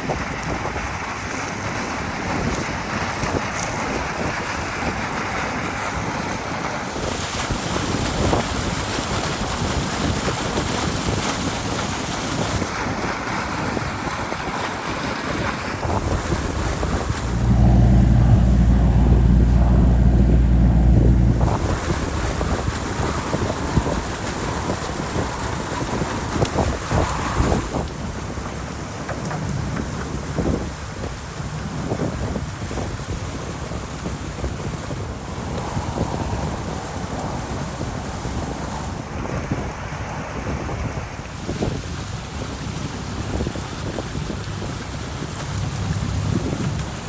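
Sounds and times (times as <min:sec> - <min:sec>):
water rushing over dam: 0:00.0 - 0:17.8, 0:21.3 - 0:47.0
low engine drone: 0:15.8 - 0:26.4.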